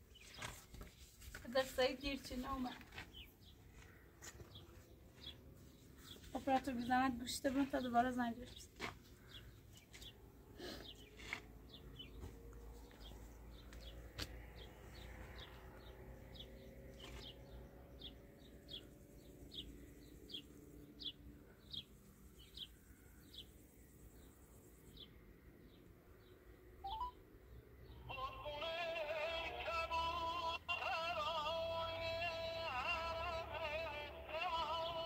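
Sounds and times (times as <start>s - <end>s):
small bird chirping: 14.9s - 27.2s.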